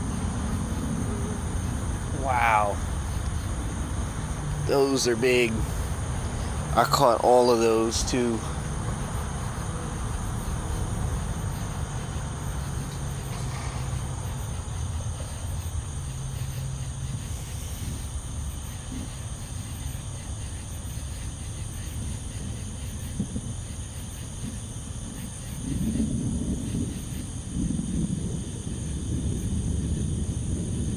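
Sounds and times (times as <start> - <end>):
distant thunder rumbling: 0.0 - 17.1
insects trilling: 0.0 - 30.9.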